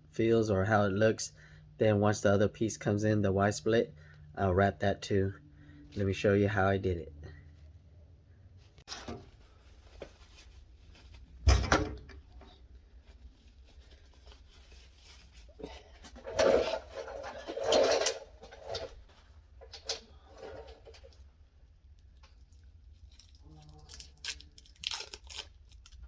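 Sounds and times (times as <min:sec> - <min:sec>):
rubbing and scraping: 0:12.4 - 0:21.2.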